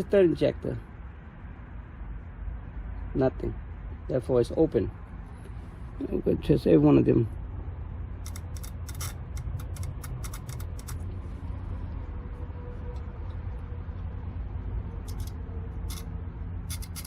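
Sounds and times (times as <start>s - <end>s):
fuel injector clicking: 8.2s - 11.1s.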